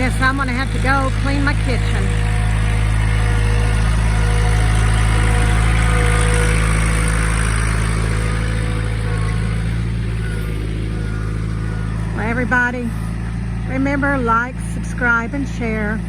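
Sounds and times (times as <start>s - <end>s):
sawmill engine running: 0.0s - 16.0s.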